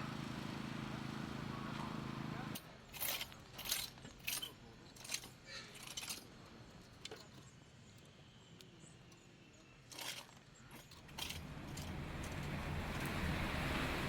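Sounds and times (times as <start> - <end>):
faint clicks and clinks: 2.6 - 7.5, 9.9 - 12.7.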